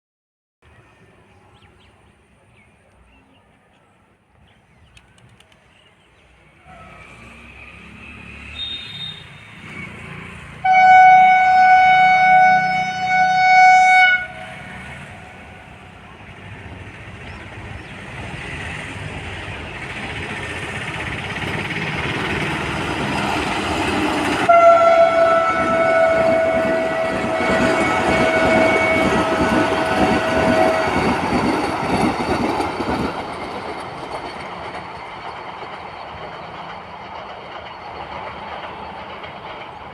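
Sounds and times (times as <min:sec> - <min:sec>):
train rumbling on track: 0:00.7 - 0:39.9
train horn blast: 0:10.6 - 0:15.7, 0:24.4 - 0:31.3.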